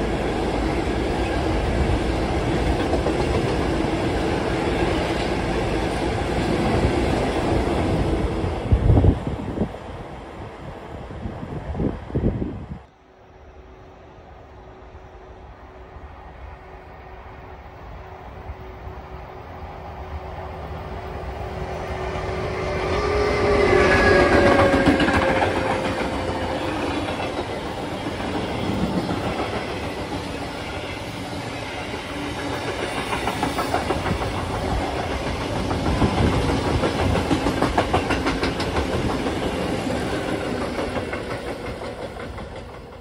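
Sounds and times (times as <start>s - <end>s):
train wagons rumbling by: 0.0s - 12.8s, 14.6s - 43.0s
electric locomotive whining: 0.0s - 43.0s
wheels clattering on rails: 32.0s - 43.0s.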